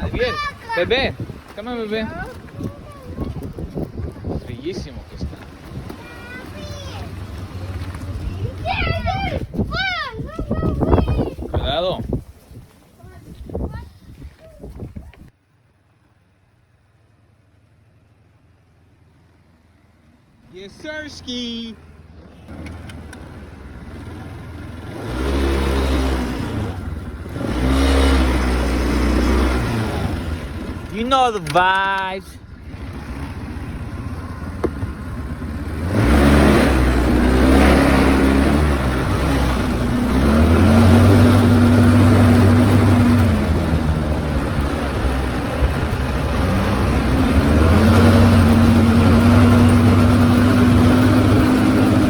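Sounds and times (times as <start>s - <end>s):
vehicle engine revving hard: 22.5s - 31.3s, 32.6s - 52.0s.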